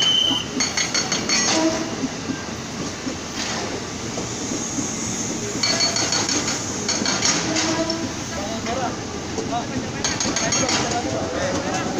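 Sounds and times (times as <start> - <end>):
train wheels rumbling on rail: 0.0 - 11.9.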